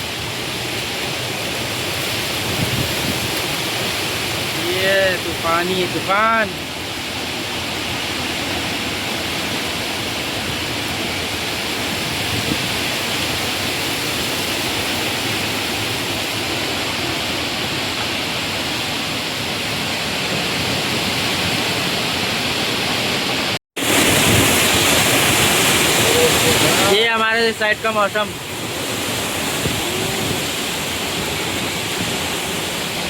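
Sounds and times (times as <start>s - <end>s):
strong wind into microphone: 2.2s - 3.6s, 10.4s - 13.4s, 22.6s - 33.0s.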